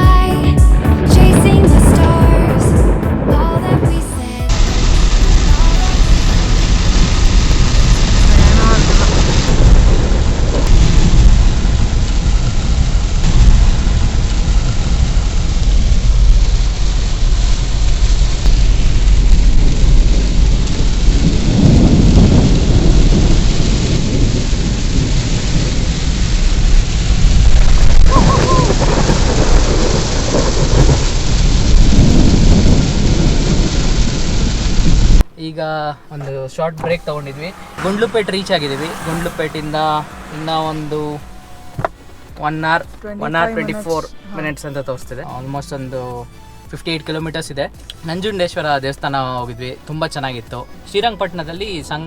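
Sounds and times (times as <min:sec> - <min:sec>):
deep low rumble: 0:00.0 - 0:35.3, 0:36.7 - 0:44.4
heavy rain on a car: 0:03.6 - 0:35.2, 0:36.4 - 0:44.3.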